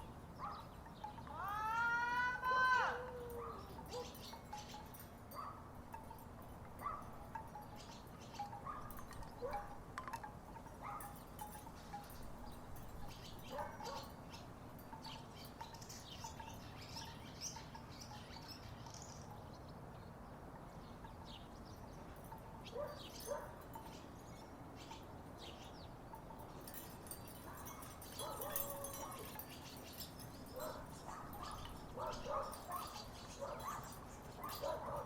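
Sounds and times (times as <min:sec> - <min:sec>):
wooden wind chimes clacking: 0:00.0 - 0:19.6, 0:20.5 - 0:35.0
bird chirps: 0:11.7 - 0:35.0.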